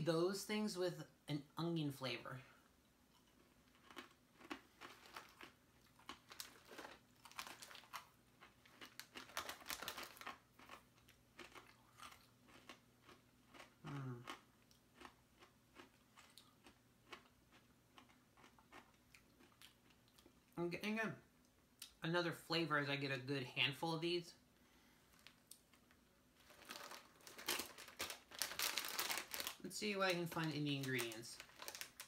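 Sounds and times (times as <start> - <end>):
person chewing crunchy snacks: 3.1 - 20.5, 26.4 - 29.6, 30.3 - 32.0
person humming low: 13.8 - 14.2.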